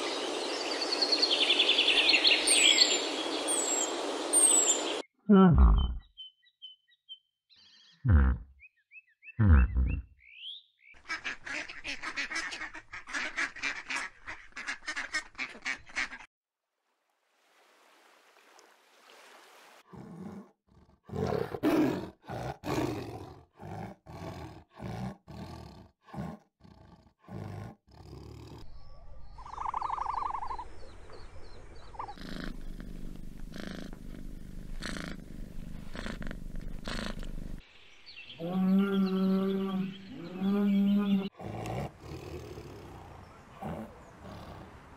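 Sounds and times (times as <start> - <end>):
duck quacking: 11.0 - 16.3
tiger growling and roaring: 19.9 - 28.8, 31.9 - 37.6, 38.4 - 44.9.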